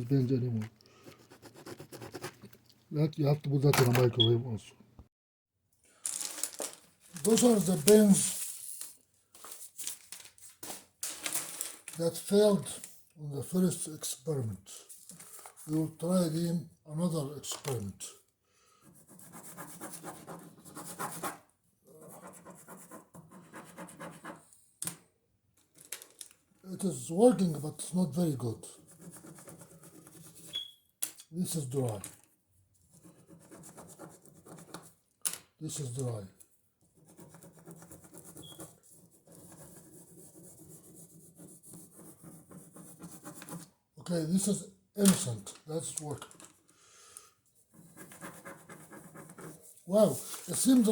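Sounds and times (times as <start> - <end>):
ballpoint pen scribbling on paper: 1.0 - 2.5, 18.8 - 24.6, 28.7 - 30.7, 32.8 - 35.0, 36.8 - 43.7, 47.6 - 49.9.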